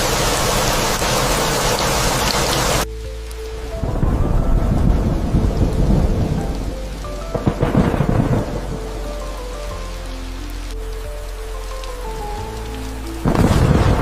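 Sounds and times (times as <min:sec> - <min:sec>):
steady rain: 0:00.0 - 0:14.0
soft background music: 0:02.8 - 0:14.0
thunder rumbling: 0:03.6 - 0:14.0.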